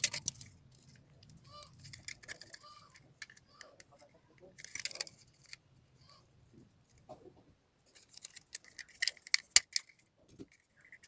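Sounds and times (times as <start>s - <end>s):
small parts clicking and rattling: 0.0s - 5.6s, 7.8s - 11.0s.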